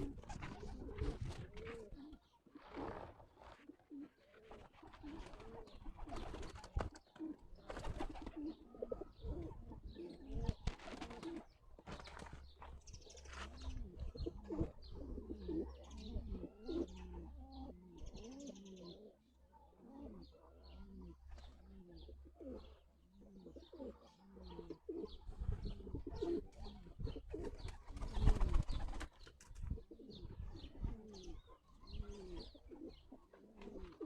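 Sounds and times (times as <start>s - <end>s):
pigeons cooing: 0.0s - 34.0s.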